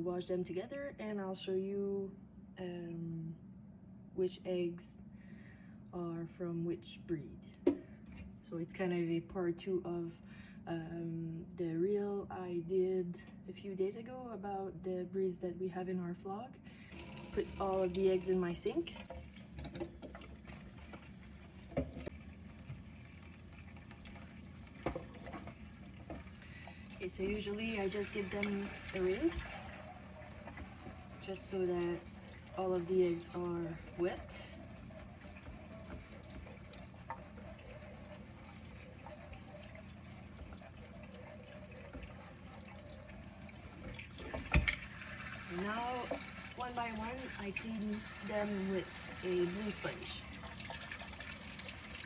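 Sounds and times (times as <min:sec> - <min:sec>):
tap running water into sink: 0:16.9 - 0:52.0
tap running into sink: 0:18.6 - 0:22.9, 0:24.0 - 0:26.4, 0:40.4 - 0:46.5.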